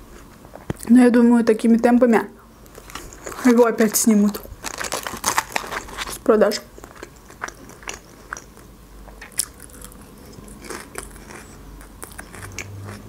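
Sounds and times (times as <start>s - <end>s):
crisp lettuce chewing: 2.7s - 13.0s.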